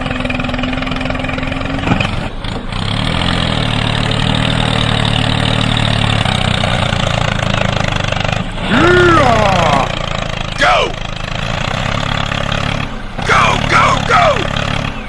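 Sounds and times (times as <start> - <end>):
small tractor motor running: 0.0 - 15.0.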